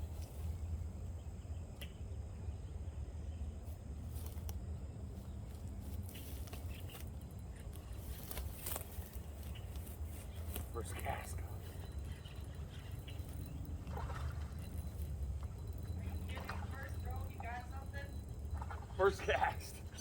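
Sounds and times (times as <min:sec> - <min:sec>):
steady low rumble: 0:00.0 - 0:20.0
faint clicks and ticks: 0:05.4 - 0:20.0.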